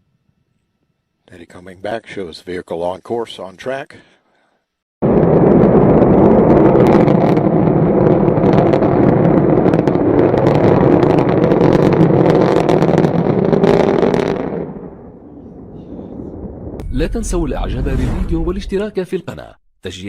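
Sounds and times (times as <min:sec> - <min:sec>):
rocket engine roar with crackling: 0:05.0 - 0:17.2.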